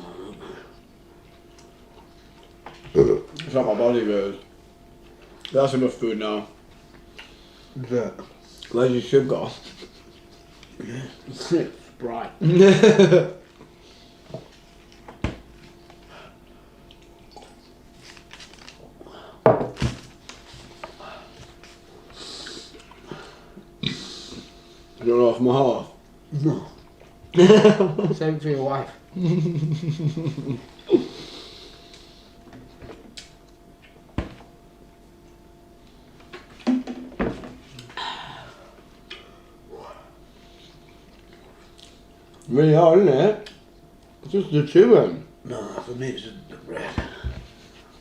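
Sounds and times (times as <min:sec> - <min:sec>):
eating sounds at a table: 0:00.0 - 0:03.6, 0:04.3 - 0:05.6, 0:06.4 - 0:08.8, 0:09.5 - 0:11.9, 0:13.4 - 0:25.0, 0:29.0 - 0:36.6, 0:37.6 - 0:42.5.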